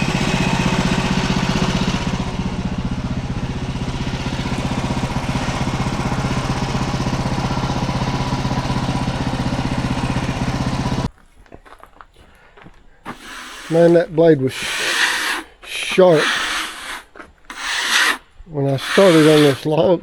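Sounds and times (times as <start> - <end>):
sawmill gas engine running: 0.0 - 11.1, 12.3 - 20.0
high hiss: 13.1 - 19.8.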